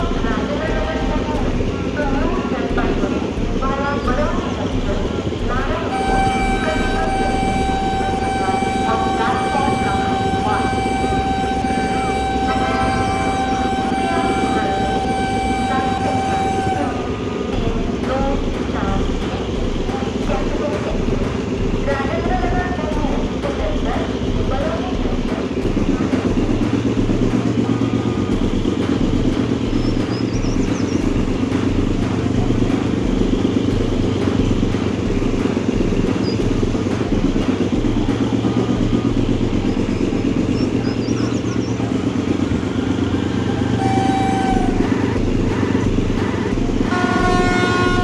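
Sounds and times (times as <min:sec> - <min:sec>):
train rumble and rattling: 0:00.0 - 0:48.0
pitched tone: 0:05.8 - 0:17.6, 0:42.9 - 0:48.0.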